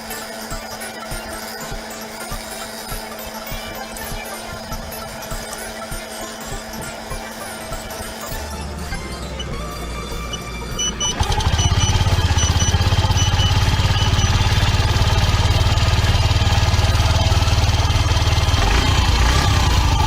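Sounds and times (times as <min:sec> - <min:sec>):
short high beeps: 0:07.8 - 0:15.0
vehicle engine starting and idling: 0:08.4 - 0:20.0.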